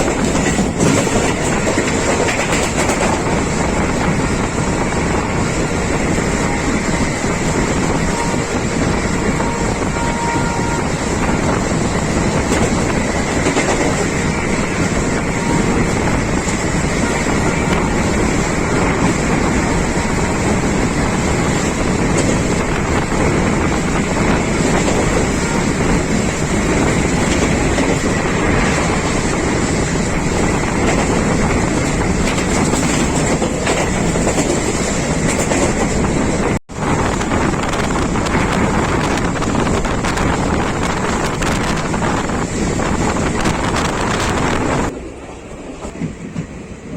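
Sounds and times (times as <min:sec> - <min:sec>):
train rumbling on rails: 0:00.0 - 0:46.9.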